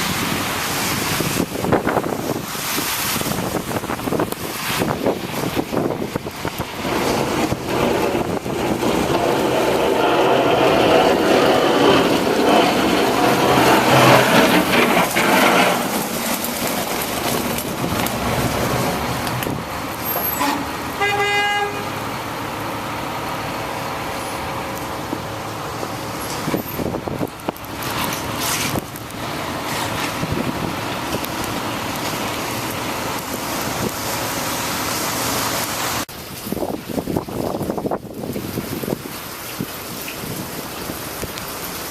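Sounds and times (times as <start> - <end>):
city street traffic hiss: 0.0 - 41.9
car horn honking: 20.2 - 22.0.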